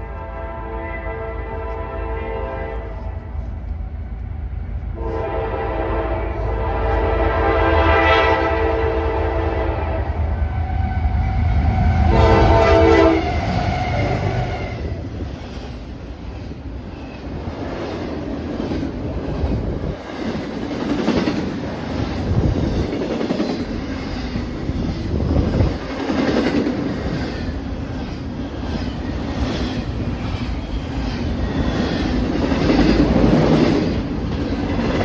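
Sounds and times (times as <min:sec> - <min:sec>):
locomotive air horn blowing: 0:00.0 - 0:03.4, 0:05.0 - 0:11.1, 0:11.8 - 0:14.9
train rumble: 0:00.0 - 0:35.0.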